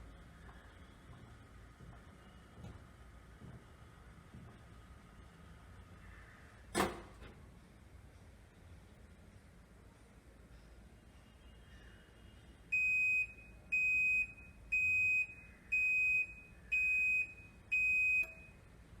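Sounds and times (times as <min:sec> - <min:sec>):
washing machine high beeps: 0:12.7 - 0:18.7.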